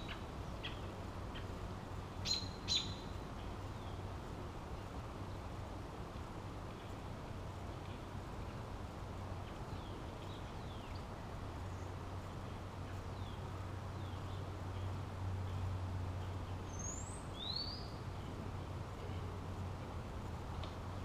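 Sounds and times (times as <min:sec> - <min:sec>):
birds chirping: 0:00.0 - 0:04.1, 0:09.4 - 0:19.3
outdoor background noise: 0:00.0 - 0:21.0.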